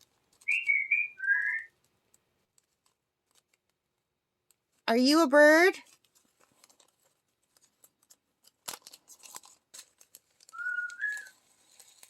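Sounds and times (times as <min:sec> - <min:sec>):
parrot whistling: 0:00.4 - 0:01.7, 0:10.5 - 0:11.3
small clicks and taps: 0:01.8 - 0:03.8.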